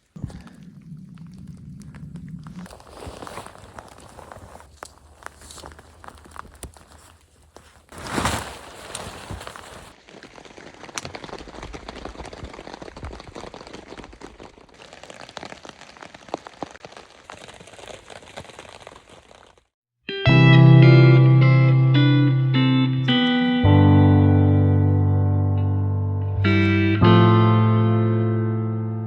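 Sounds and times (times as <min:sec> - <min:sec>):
rain pattering: 0:09.8 - 0:19.6.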